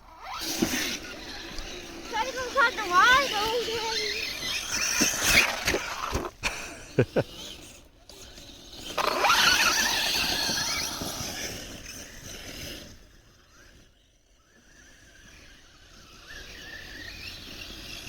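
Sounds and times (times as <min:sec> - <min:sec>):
toy truck electric motor whining: 0:00.0 - 0:18.0.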